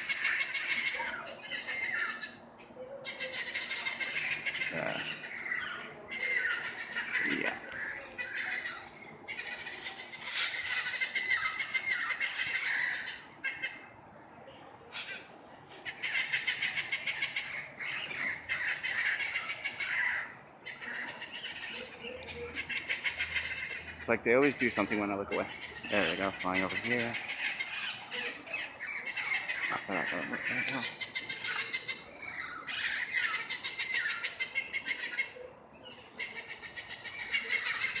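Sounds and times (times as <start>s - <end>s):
parrots squawking: 0.0s - 14.0s, 14.9s - 38.0s.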